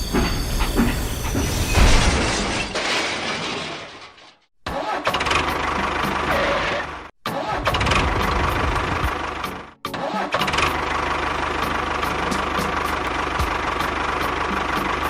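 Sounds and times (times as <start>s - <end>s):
small engine running: 7.4s - 15.0s.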